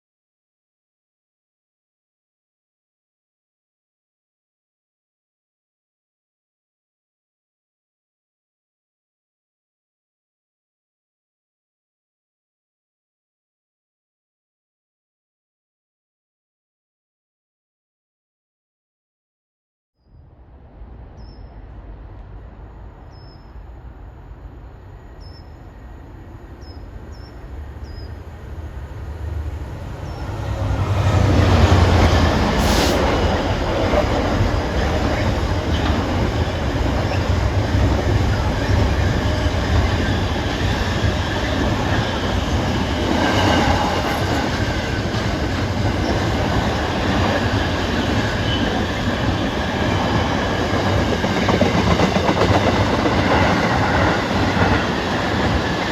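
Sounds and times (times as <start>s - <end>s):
train passing close by: 20.2s - 55.9s.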